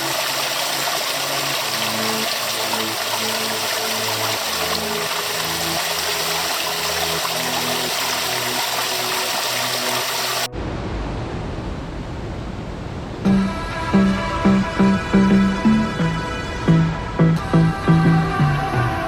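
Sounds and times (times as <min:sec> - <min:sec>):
rushing water: 0:00.0 - 0:10.8
low rumbling noise: 0:10.4 - 0:19.0
electronic music with a beat: 0:13.3 - 0:19.0.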